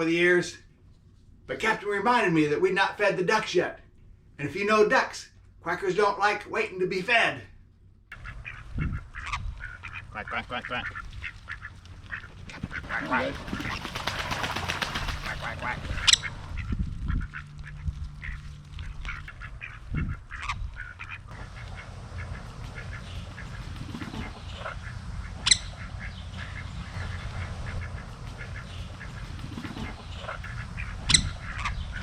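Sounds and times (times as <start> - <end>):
low steady rumble: 7.5 - 32.0
ducks quacking: 8.1 - 32.0.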